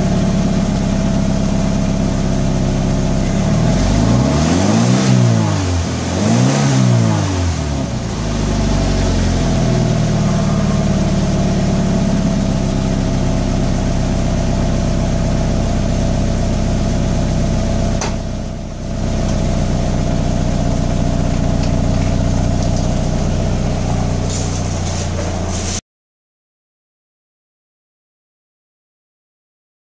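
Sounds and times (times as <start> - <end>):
car engine idling: 0.0 - 4.3, 7.0 - 25.8.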